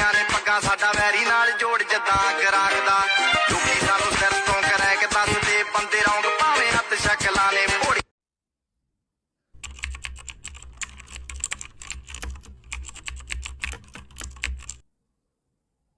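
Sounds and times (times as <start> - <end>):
keyboard typing: 9.6 - 14.8.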